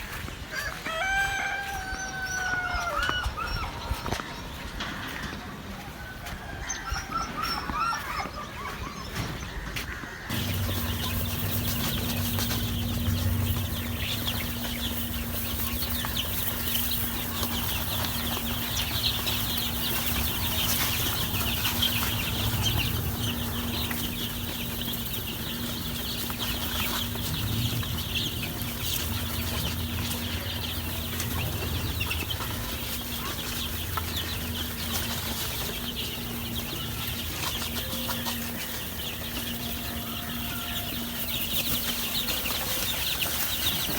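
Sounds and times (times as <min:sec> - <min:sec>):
chicks peeping: 0:00.0 - 0:43.9
steady low hum: 0:10.3 - 0:42.9.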